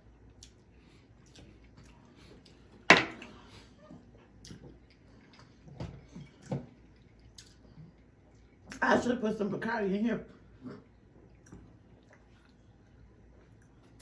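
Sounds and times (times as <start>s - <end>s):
wet chewing noises: 0.2s - 2.7s, 4.0s - 8.8s, 10.5s - 14.0s.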